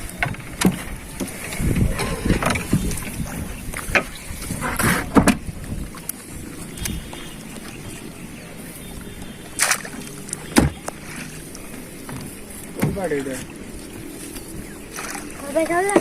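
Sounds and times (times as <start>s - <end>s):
water wash from boat: 0.0s - 16.0s
sharp knocks or splashes: 9.6s - 11.4s, 12.1s - 13.5s.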